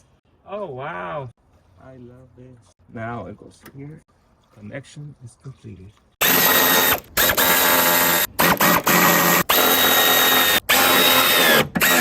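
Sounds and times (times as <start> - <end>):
power drill motor whining: 6.2 - 12.0.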